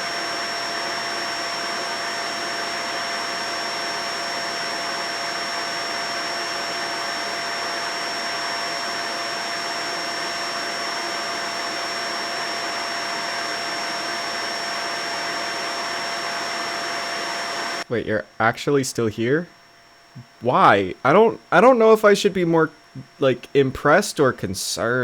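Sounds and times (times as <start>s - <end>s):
vacuum cleaner running: 0.0s - 17.9s.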